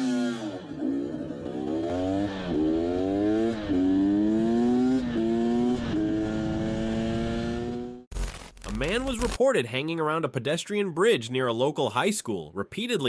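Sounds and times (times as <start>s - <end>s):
motorcycle engine accelerating: 0.0s - 8.1s.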